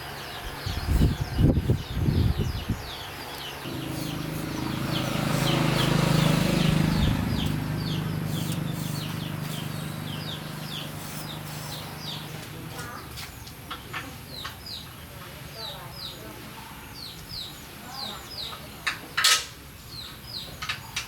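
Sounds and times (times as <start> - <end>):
low droning motor hum: 0.0 - 13.0
small birds chirping: 0.0 - 19.2, 19.8 - 21.0.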